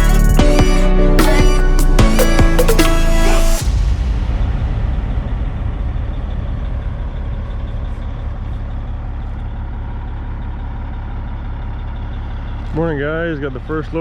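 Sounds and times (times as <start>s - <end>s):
diesel truck engine idling: 6.0s - 14.0s.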